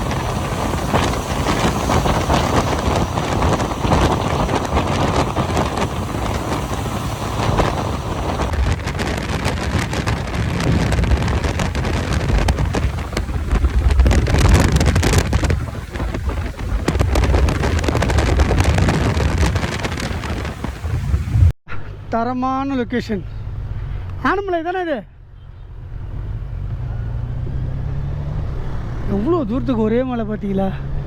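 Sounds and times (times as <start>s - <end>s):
wind buffeting microphone: 0.0s - 21.6s
vehicle rumble at road speed: 0.0s - 31.0s.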